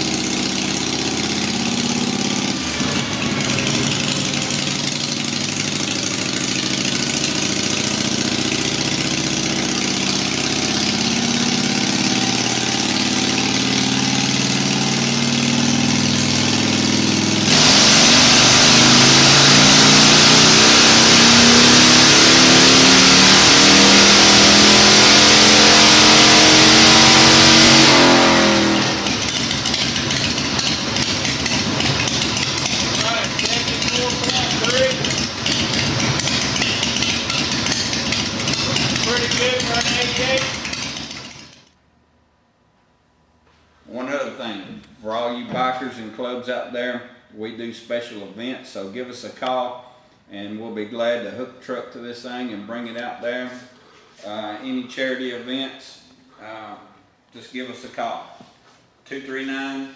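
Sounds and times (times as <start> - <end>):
motorcycle engine revving on dyno: 0.0 - 41.8.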